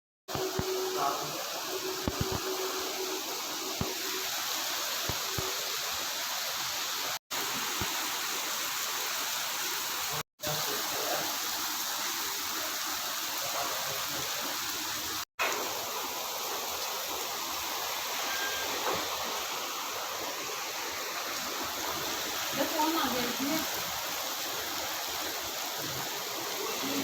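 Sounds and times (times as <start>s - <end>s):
rain falling: 0.3s - 27.0s.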